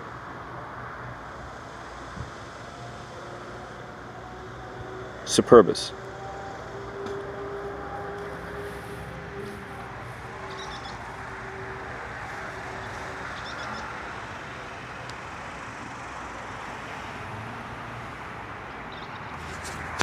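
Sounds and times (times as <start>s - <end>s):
outdoor background hiss and hum: 0.0s - 20.0s
faint high chirps: 10.4s - 11.1s.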